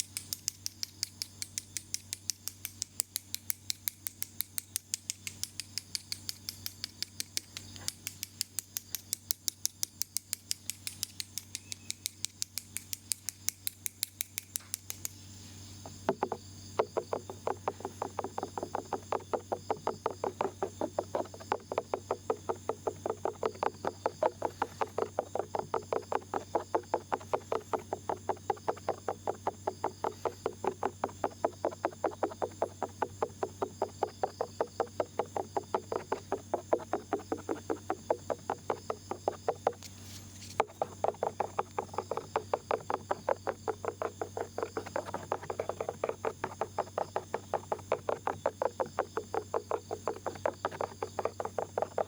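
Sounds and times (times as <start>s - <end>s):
ear pick scraping microphone: 15.6s - 52.0s.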